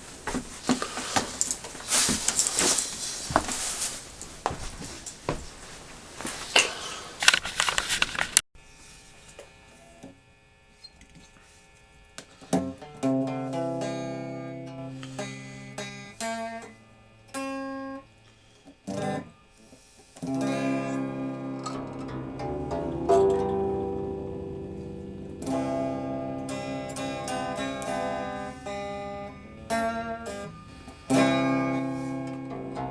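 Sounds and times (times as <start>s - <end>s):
noisy rustling with sharp clicks: 0.0s - 8.4s
plucked string instrument music: 12.6s - 18.0s, 18.9s - 19.4s, 20.2s - 32.9s.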